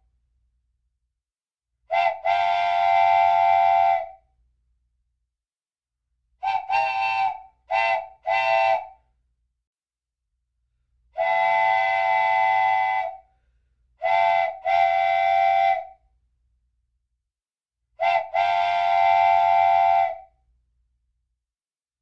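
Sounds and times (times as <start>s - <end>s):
steam train whistle toots: 1.9s - 4.2s, 6.4s - 9.0s, 11.2s - 13.3s, 14.0s - 16.0s, 18.0s - 20.4s.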